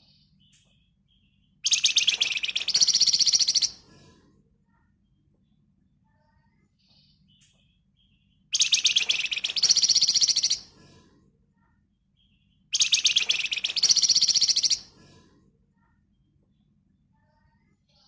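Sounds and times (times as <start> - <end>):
songbird rattling trills: 1.7 - 3.7, 8.6 - 10.6, 12.8 - 14.8.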